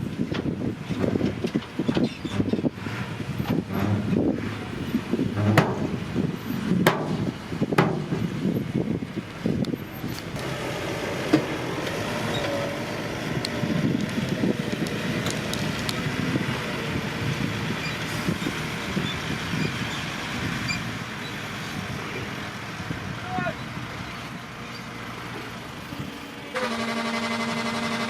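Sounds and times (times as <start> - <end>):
heavy diesel machinery rumbling: 0.0 - 28.0
sharp metallic knocks: 5.4 - 6.0, 6.8 - 8.2.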